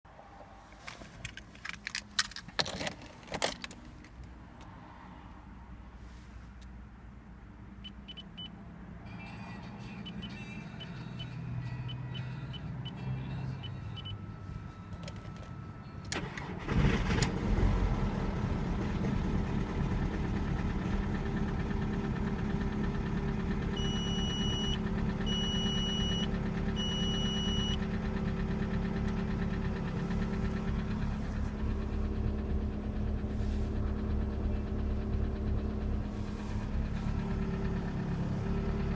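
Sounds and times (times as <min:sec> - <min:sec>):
short beeps: 0:07.8 - 0:08.5, 0:10.0 - 0:16.1, 0:23.8 - 0:27.8
diesel engine starting and idling: 0:07.8 - 0:38.9.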